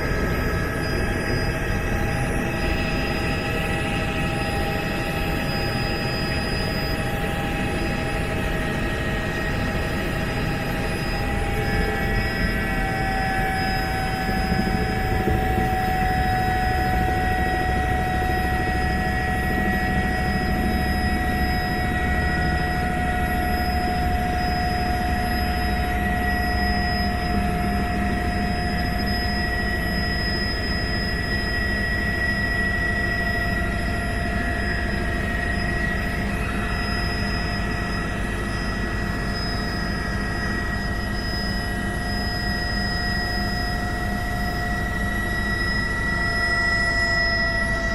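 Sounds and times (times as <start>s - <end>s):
helicopter engine and rotor drone: 0.0s - 47.9s.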